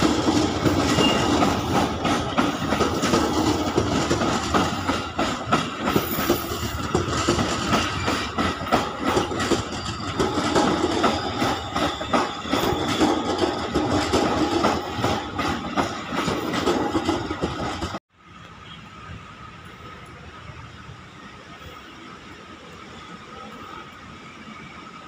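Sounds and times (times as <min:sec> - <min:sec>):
train wheels clacking over rail joints: 0:00.0 - 0:18.0
steady train hum: 0:00.0 - 0:25.0.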